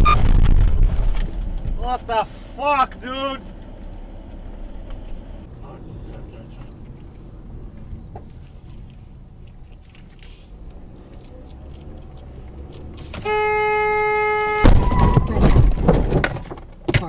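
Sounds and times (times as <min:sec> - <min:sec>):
loud collision crash: 0:00.0 - 0:02.0, 0:14.6 - 0:16.2
car engine and road noise: 0:00.0 - 0:17.0
car horn steady tone: 0:13.1 - 0:15.6.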